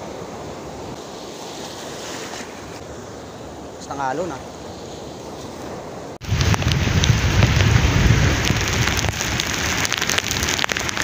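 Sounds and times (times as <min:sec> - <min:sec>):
heavy rain pouring: 0:06.2 - 0:11.0.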